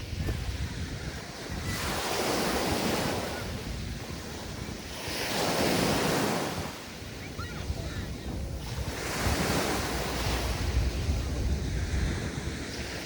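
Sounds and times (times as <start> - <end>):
waves washing onto beach: 0.0 - 13.0
wind rumbling on microphone: 0.0 - 13.0.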